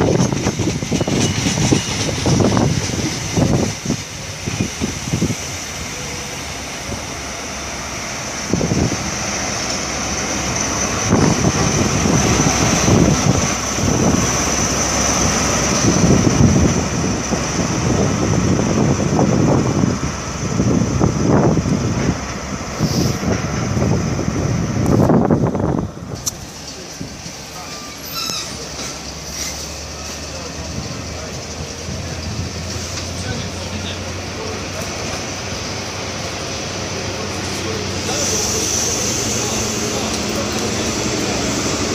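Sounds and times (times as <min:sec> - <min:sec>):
wind buffeting microphone: 0:00.0 - 0:05.9, 0:08.4 - 0:09.3, 0:10.5 - 0:27.4
train running with high whine: 0:00.0 - 0:41.9.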